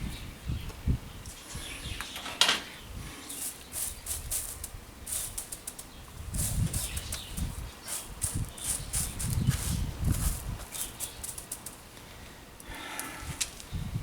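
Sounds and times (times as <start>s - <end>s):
shears snipping twigs: 3.4s - 7.4s, 8.0s - 11.8s.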